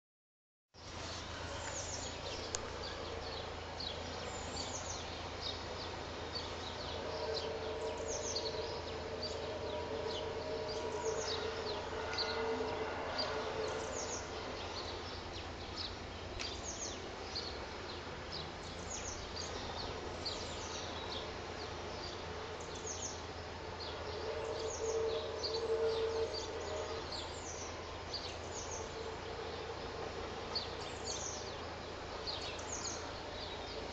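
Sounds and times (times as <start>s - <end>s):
long droning tone: 1.0s - 31.0s
birds chirping: 1.4s - 33.9s.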